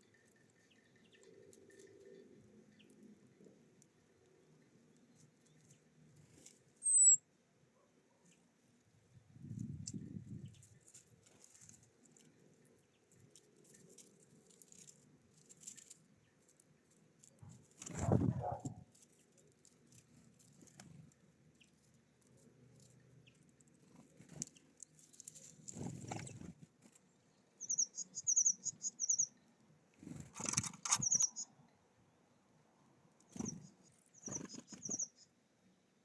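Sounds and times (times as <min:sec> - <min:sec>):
songbirds chirping: 0:00.0 - 0:36.0
wing flutters: 0:17.2 - 0:19.2, 0:23.8 - 0:27.0, 0:30.0 - 0:31.4, 0:33.3 - 0:35.2.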